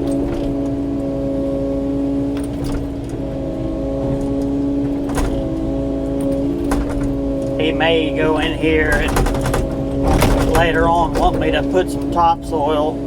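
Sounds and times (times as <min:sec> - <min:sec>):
excavator engine and hydraulics: 0:00.0 - 0:13.0
short knocks: 0:04.0 - 0:12.2.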